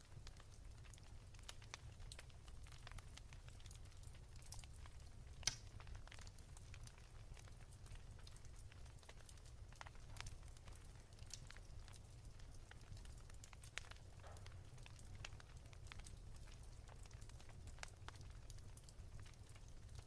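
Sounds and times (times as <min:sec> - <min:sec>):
fire crackling and popping: 0:00.0 - 0:20.0
low fire rumble: 0:00.0 - 0:20.0.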